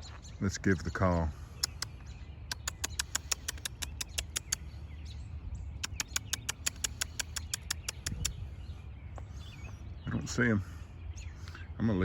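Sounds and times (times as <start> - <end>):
person making squeaky mouth sounds: 1.6 - 1.8, 2.5 - 4.6, 5.8 - 8.4
low wind rumble: 4.0 - 12.0.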